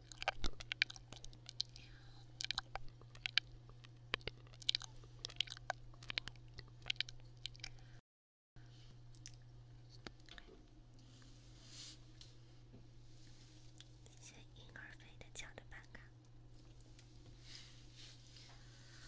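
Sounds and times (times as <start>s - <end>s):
crisp clicks and crackles: 0.0s - 7.8s
steady low hum: 0.0s - 8.0s, 8.6s - 19.0s
faint whisper: 14.0s - 16.2s.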